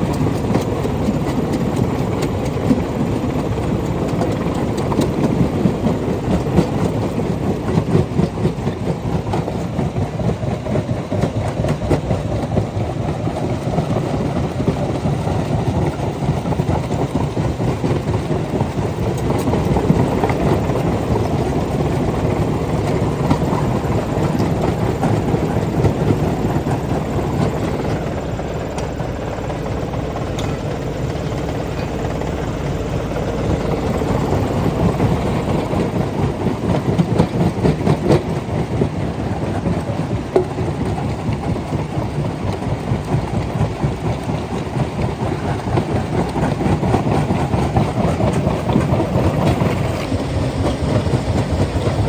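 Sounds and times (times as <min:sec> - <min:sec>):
rock crusher rumbling: 0:15.4 - 0:52.0.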